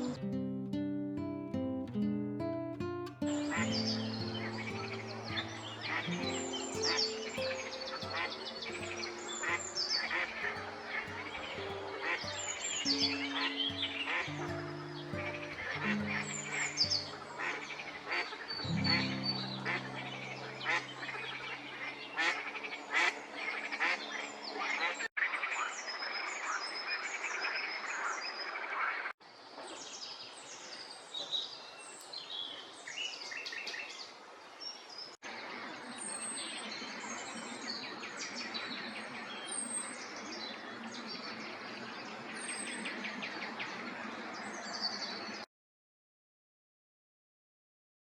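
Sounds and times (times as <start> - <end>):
birds singing and calling: 3.2 - 25.1, 35.4 - 45.4.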